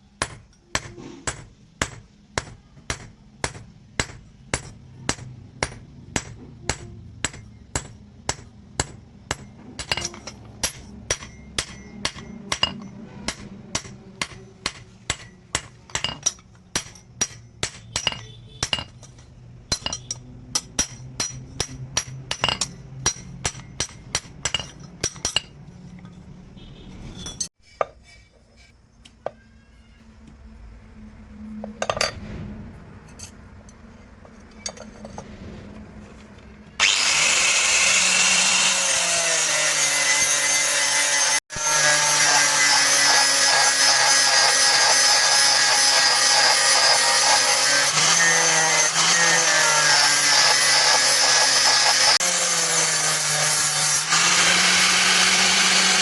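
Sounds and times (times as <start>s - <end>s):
hammer striking steel on anvil: 0.2s - 25.6s.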